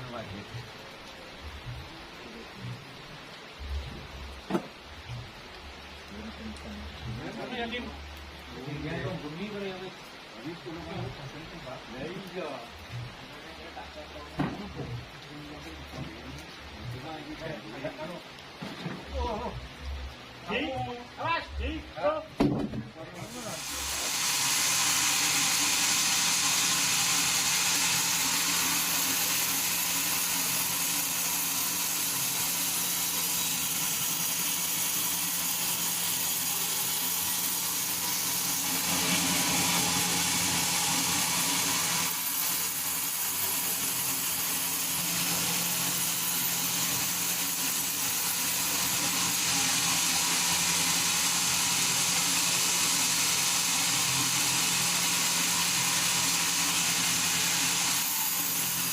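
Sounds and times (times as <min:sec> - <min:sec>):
sawmill machinery running: 0:23.2 - 0:58.9.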